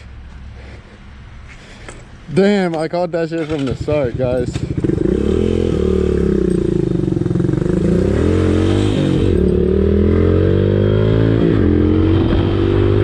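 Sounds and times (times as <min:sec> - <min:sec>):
motorcycle engine: 0:03.4 - 0:13.0.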